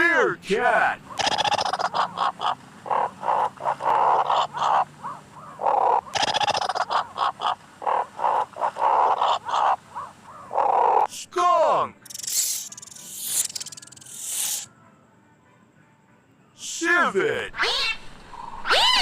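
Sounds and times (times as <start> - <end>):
meerkat chirping barks: 1.0 - 11.1, 17.5 - 18.0.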